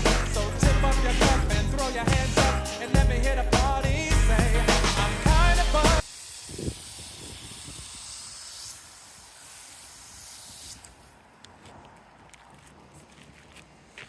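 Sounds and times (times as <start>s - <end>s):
hose nozzle spraying hiss: 4.1s - 11.2s.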